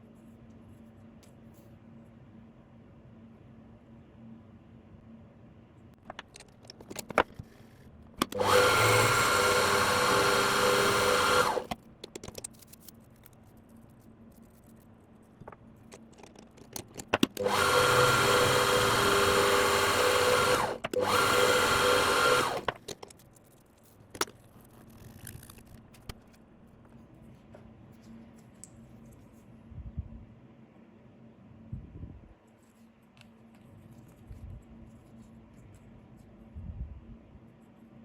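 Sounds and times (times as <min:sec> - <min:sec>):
clicks and handling noises: 0:06.0 - 0:08.6, 0:11.4 - 0:17.6, 0:22.3 - 0:29.5
small power tool motor whine: 0:08.3 - 0:11.7, 0:17.4 - 0:22.7.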